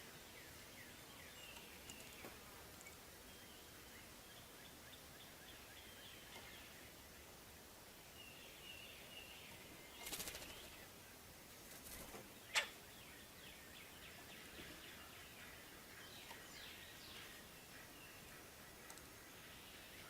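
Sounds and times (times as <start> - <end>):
small birds chirping faintly: 0.0 - 20.0
bird wingbeats fluttering: 10.0 - 10.8, 11.6 - 12.3.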